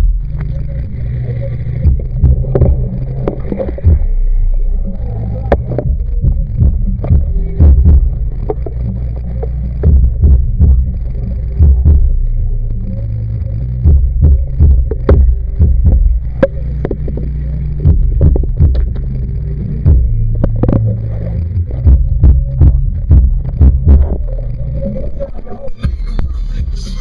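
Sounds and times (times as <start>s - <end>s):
muffled underwater rumble: 0.0s - 27.0s
underwater knocks and clicks: 1.9s - 4.0s, 5.4s - 10.9s, 13.9s - 19.1s, 19.8s - 21.2s, 21.8s - 24.4s.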